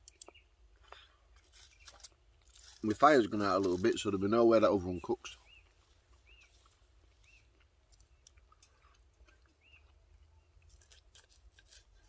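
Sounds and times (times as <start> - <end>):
faint bird chirp: 0.0 - 2.1, 4.8 - 10.6.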